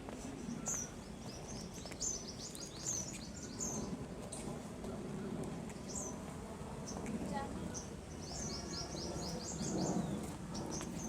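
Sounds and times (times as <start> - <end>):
small birds chirping: 0.3 - 4.5, 7.7 - 11.0.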